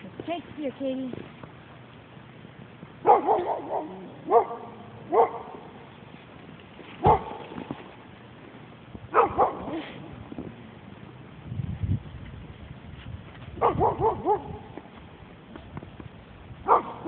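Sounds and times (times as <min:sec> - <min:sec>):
dog barking: 0:03.0 - 0:05.7, 0:07.0 - 0:07.5, 0:09.1 - 0:10.0, 0:13.6 - 0:14.7, 0:16.6 - 0:17.0.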